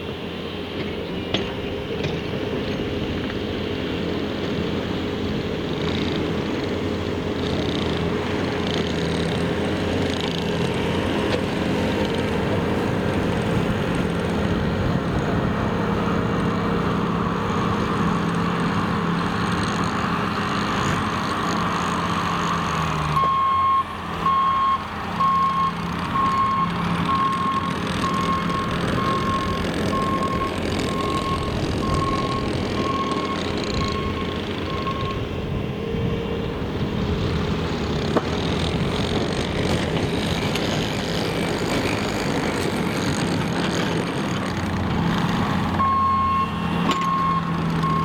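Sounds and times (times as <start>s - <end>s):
truck engine running: 0.0s - 48.0s
back-up alarm beeping: 23.1s - 35.3s, 45.8s - 48.0s.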